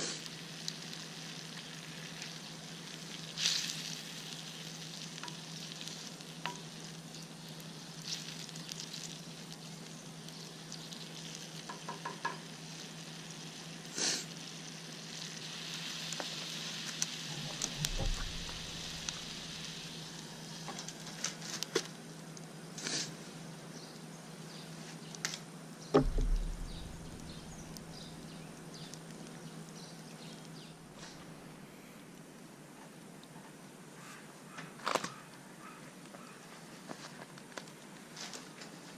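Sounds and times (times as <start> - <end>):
food sizzling in a pan: 0.0 - 21.6, 26.0 - 28.9
dull thumps: 26.0 - 28.3.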